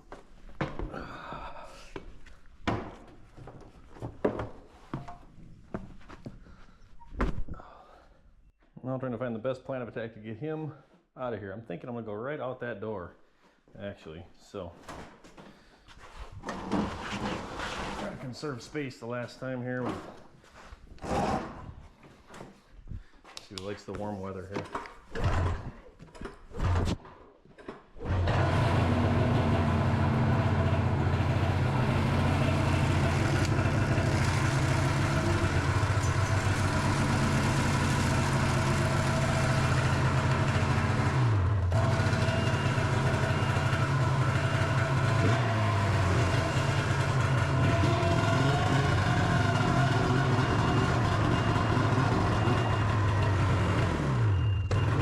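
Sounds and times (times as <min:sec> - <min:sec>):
snowmobile engine running: 0:28.4 - 0:54.2.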